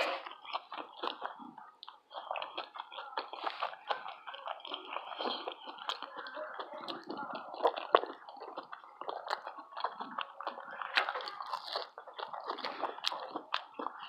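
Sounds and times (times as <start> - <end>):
person chewing crunchy food: 0.0 - 14.0.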